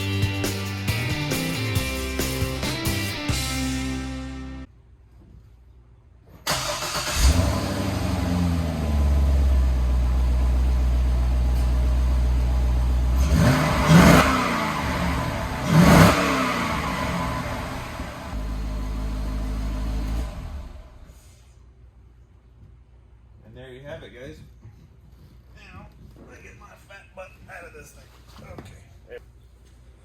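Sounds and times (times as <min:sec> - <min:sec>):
car engine idling: 0:06.5 - 0:21.1
engine throttle blips: 0:06.5 - 0:21.2.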